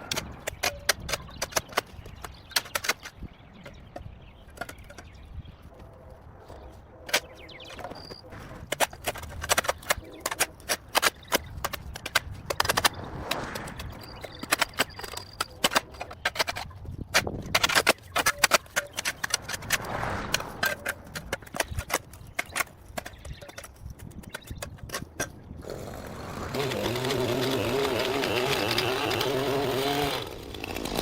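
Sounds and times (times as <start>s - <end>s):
sharp clicks and snaps: 8.8s - 25.4s.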